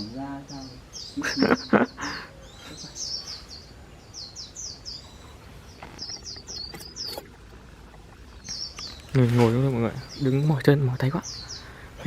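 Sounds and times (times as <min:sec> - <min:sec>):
birds chirping and twittering: 0:00.0 - 0:12.0.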